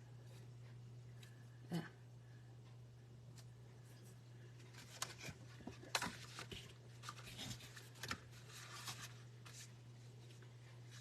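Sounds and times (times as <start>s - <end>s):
paper and ribbon rustling: 4.7s - 11.0s.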